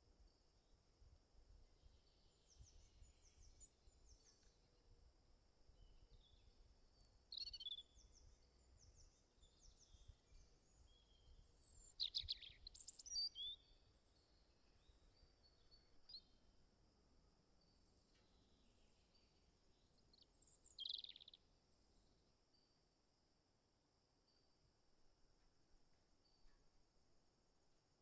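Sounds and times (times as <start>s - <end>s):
birds chirping and twittering: 5.7s - 16.4s, 17.9s - 21.4s.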